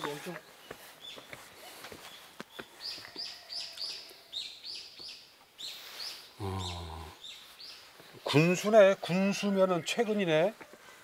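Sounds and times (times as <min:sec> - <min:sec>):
small bird chirping: 0:00.6 - 0:08.0.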